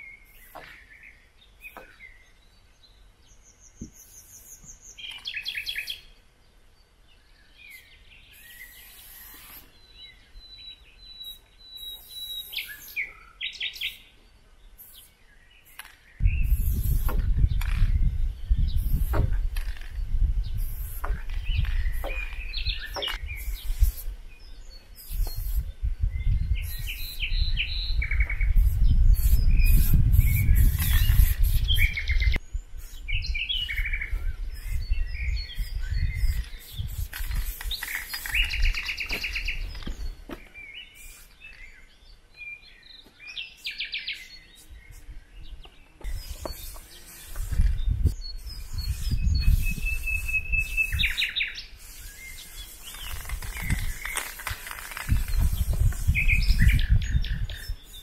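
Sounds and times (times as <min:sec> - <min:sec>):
songbirds chirping and trilling: 0:00.0 - 0:58.0
spray paint can hissing: 0:08.3 - 0:09.7, 0:14.8 - 0:17.2, 0:18.8 - 0:19.8, 0:20.6 - 0:24.1, 0:25.0 - 0:25.7, 0:28.6 - 0:32.0, 0:35.6 - 0:39.0, 0:41.0 - 0:41.4, 0:46.1 - 0:56.7.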